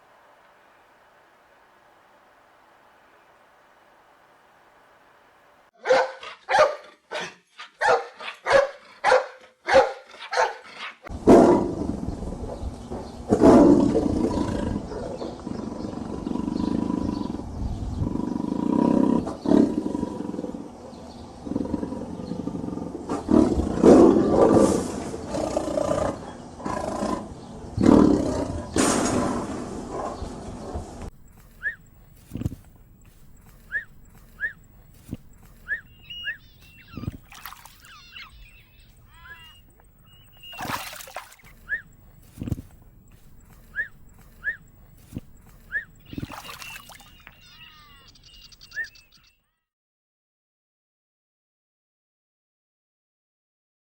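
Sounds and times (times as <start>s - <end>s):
tiger roaring and growling: 11.1s - 30.8s
short evenly spaced calls: 31.2s - 49.3s.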